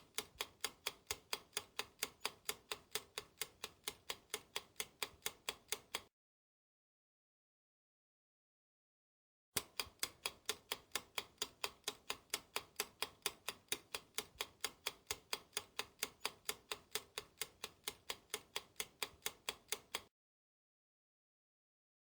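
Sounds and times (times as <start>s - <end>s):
clock ticking: 0.0s - 6.1s, 9.6s - 20.1s.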